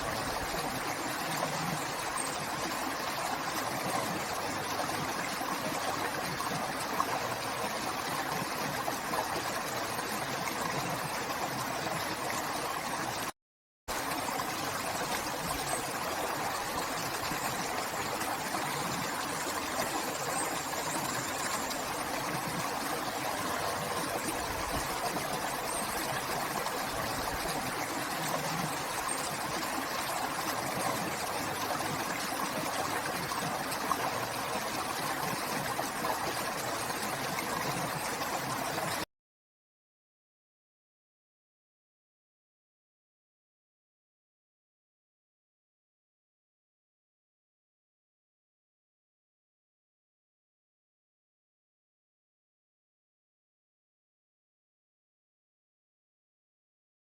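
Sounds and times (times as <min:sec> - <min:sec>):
river water flowing: 0:00.0 - 0:13.3, 0:13.9 - 0:39.0.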